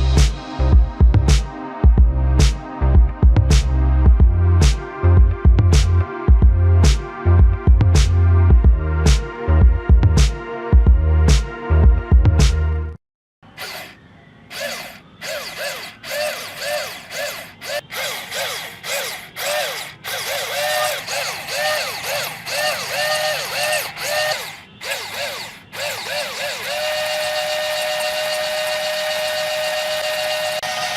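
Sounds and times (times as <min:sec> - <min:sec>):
small electric motor whining: 0:13.5 - 0:30.9.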